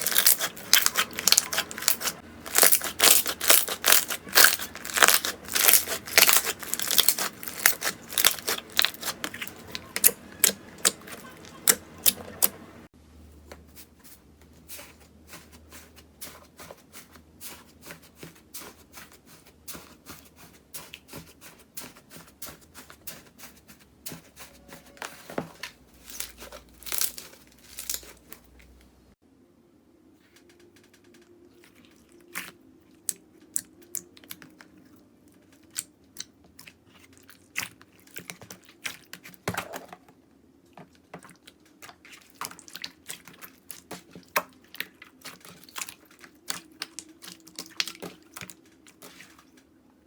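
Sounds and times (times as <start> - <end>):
slime crackling and popping: 0.0 - 12.6, 26.0 - 28.4.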